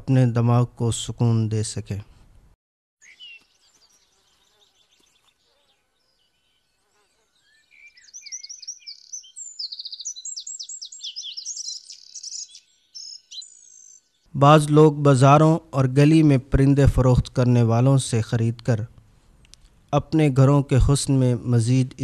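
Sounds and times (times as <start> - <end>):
small birds chirping and twittering: 3.0 - 14.3.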